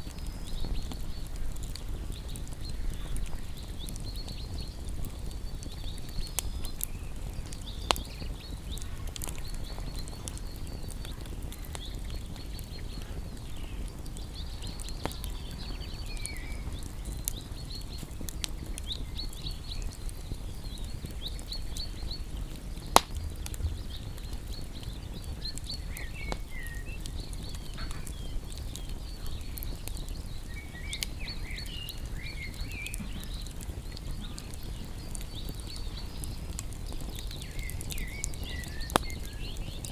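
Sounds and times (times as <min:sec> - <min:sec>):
songbirds chirping: 0:00.0 - 0:39.9
wood fire crackling: 0:00.0 - 0:39.9.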